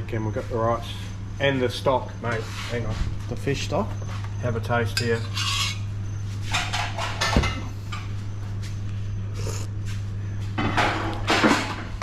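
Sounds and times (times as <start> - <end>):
steady low hum: 0.0 - 12.0
cooking pot scrapes and rustles: 2.4 - 3.1, 5.2 - 7.1.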